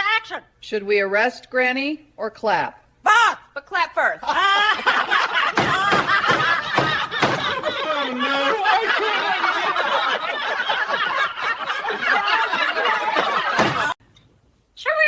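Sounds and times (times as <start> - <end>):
people laughing together: 4.2 - 14.0.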